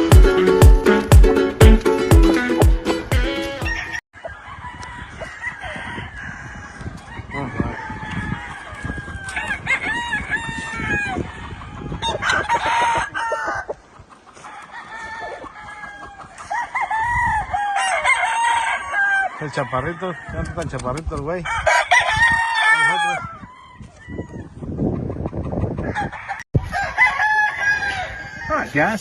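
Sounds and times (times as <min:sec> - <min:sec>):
roosters crowing: 0:03.5 - 0:29.0
chickens clucking: 0:11.2 - 0:16.8, 0:23.8 - 0:26.4.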